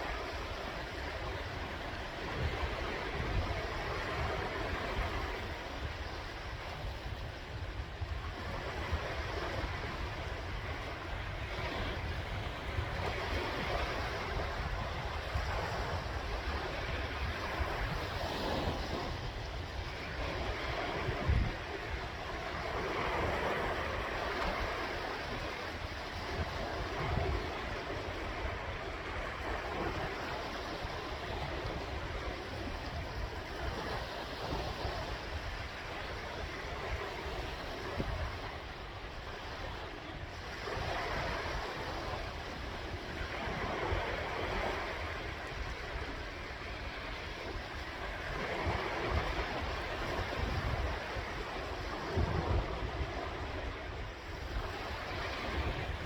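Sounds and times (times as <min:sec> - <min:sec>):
waves breaking on shore: 0:00.0 - 0:56.0
wind rumbling on microphone: 0:00.0 - 0:56.0.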